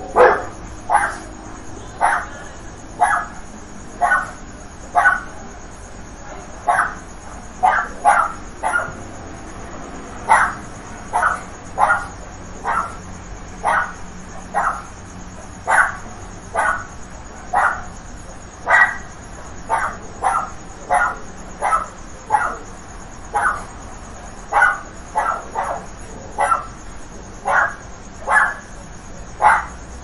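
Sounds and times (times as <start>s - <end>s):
dog barking: 0.0s - 1.3s, 1.9s - 3.4s, 4.0s - 4.4s, 5.0s - 5.4s, 6.6s - 7.0s, 7.6s - 9.0s, 10.3s - 13.0s, 13.6s - 14.9s, 15.6s - 16.9s, 17.5s - 17.9s, 18.7s - 19.1s, 19.7s - 22.6s, 23.3s - 23.7s, 24.5s - 26.8s, 27.4s - 28.7s, 29.4s - 29.8s.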